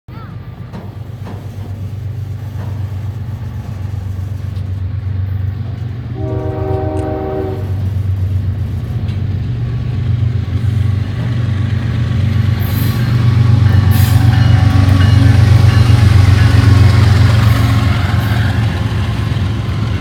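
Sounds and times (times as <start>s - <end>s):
diesel locomotive engine rumble: 0.1s - 20.0s
locomotive horn blast: 6.1s - 8.0s.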